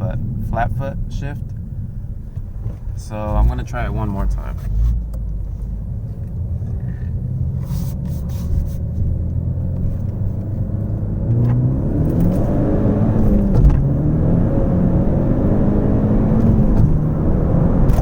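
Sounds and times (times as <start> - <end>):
turbocharged car engine accelerating: 6.5 - 18.0.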